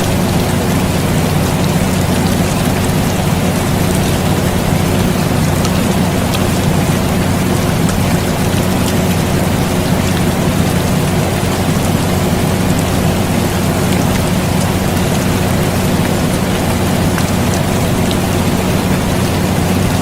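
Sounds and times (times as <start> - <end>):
air conditioner humming: 0.0 - 20.0
steady rain hiss: 0.0 - 20.0.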